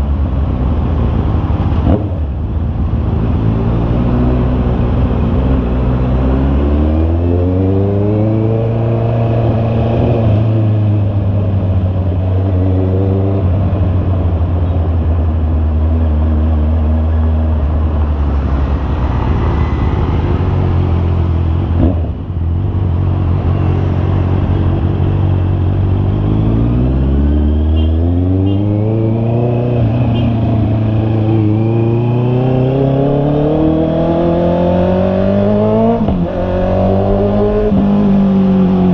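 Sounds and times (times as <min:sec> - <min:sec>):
motorcycle engine accelerating: 0:19.4 - 0:38.9.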